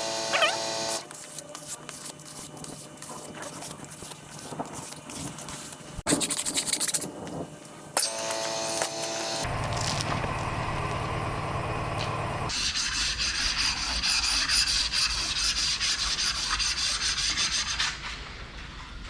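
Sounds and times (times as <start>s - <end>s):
electric sander sanding wood: 0.0s - 1.1s.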